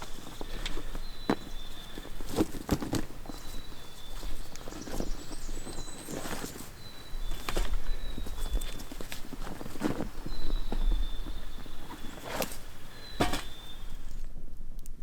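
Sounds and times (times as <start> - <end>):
footsteps on mossy forest floor: 0.0 - 14.2.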